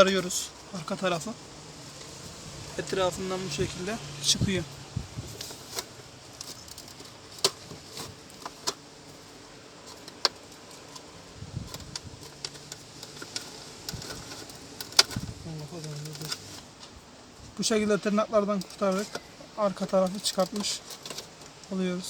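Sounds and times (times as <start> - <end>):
plastic ticking while handled: 5.4 - 16.9, 17.6 - 21.8.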